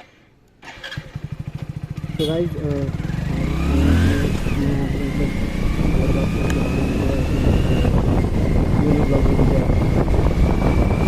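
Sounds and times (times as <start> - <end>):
motorcycle engine running: 0.7 - 11.0
wind buffeting microphone: 2.9 - 11.0.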